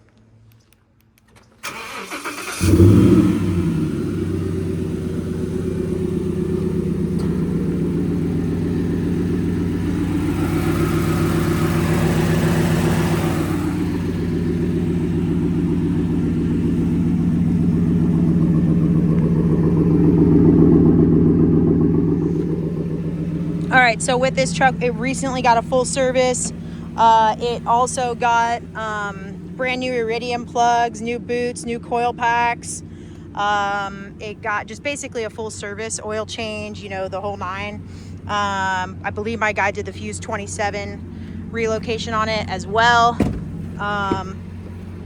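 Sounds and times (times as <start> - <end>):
engine starter cranking: 1.2 - 36.7, 39.7 - 45.0
engine starting and idling: 1.2 - 45.0.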